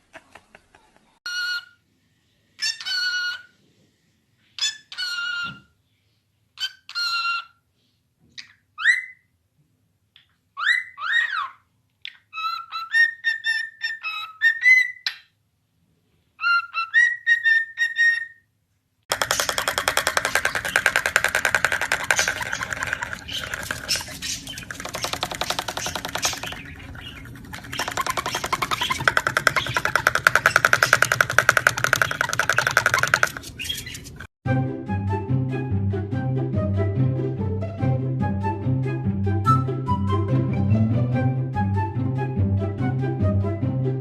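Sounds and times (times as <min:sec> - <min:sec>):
parrot whistling and calling: 0:10.6 - 0:15.2, 0:16.4 - 0:18.4, 0:19.2 - 0:34.3.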